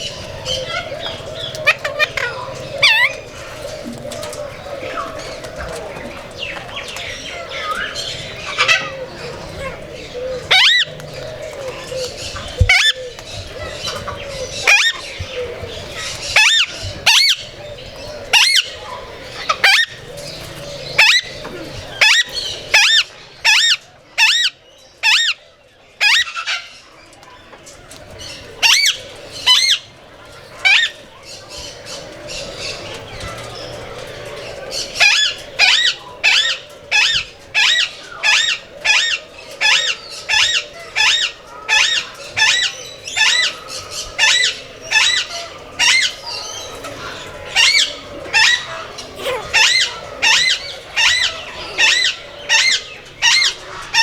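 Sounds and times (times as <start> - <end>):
bird squawking harshly: 49.2 - 49.9.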